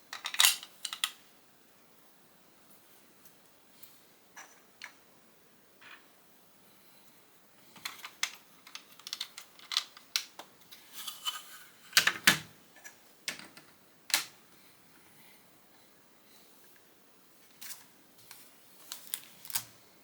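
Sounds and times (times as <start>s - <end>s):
plastic bricks clicking: 7.8s - 10.5s.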